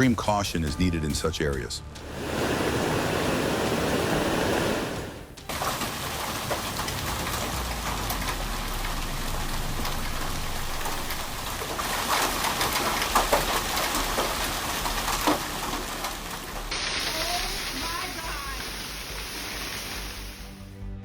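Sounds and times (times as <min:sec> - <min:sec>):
heavy rain pouring: 0:02.0 - 0:20.7
hailstones striking surface: 0:05.4 - 0:20.6.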